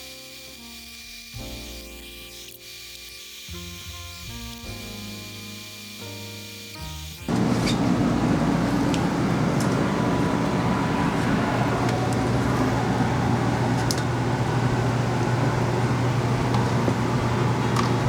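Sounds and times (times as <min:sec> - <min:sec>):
low mechanical hum: 0:07.3 - 0:18.0.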